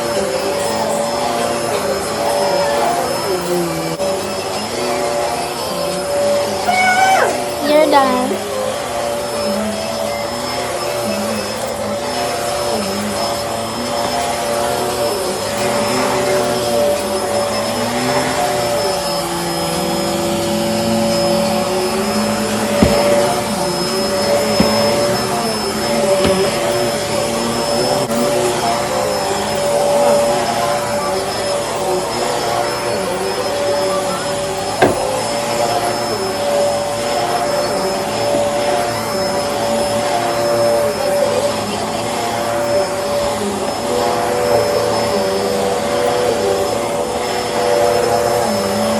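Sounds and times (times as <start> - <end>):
vacuum cleaner running: 0.0 - 48.9.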